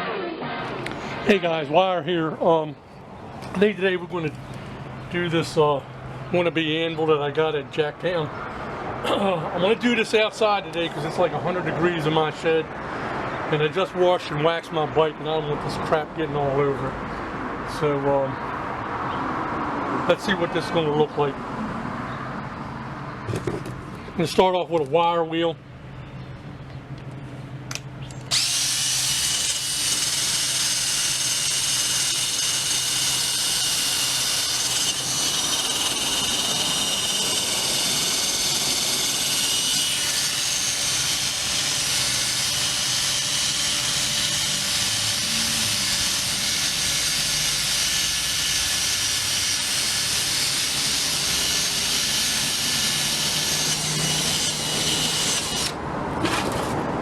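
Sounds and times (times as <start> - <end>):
wire wheel scratching rusty metal: 28.3 - 56.8.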